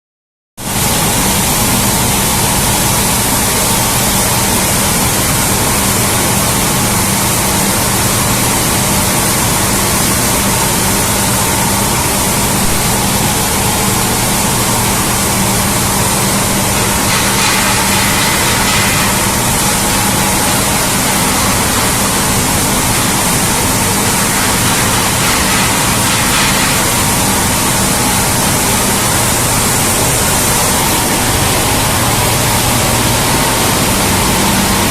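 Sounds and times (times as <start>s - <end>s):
machinery rushing noise: 9.2s - 34.9s.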